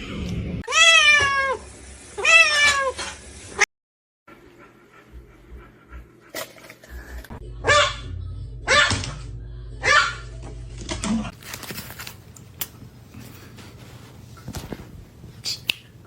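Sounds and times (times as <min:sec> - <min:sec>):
low hum: 0:04.3 - 0:11.3.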